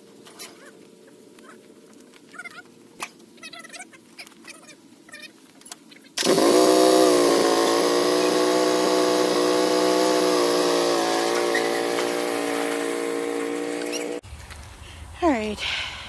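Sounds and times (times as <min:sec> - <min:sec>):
small engine running: 0:06.2 - 0:14.2.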